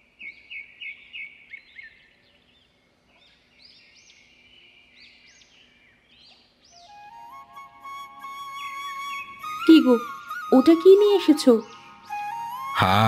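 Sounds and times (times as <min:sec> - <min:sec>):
birds chirping: 0:00.0 - 0:13.0
whistled bird calls: 0:03.6 - 0:12.9.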